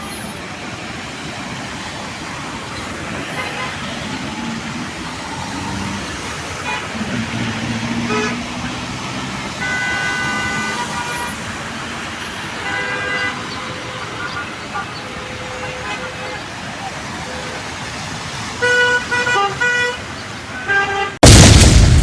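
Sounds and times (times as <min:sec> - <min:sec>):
traffic engine hum and hiss: 0:00.0 - 0:21.2
car horns honking: 0:03.2 - 0:04.6, 0:05.2 - 0:11.7, 0:12.5 - 0:17.6, 0:18.6 - 0:21.4.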